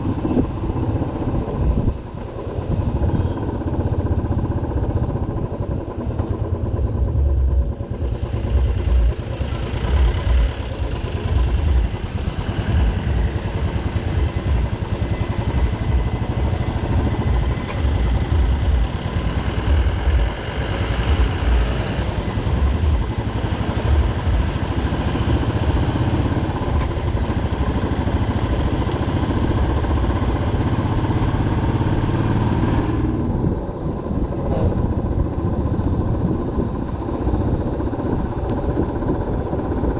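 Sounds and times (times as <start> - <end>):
motorcycle engine: 0.0 - 39.9
wind on microphone: 32.7 - 39.9.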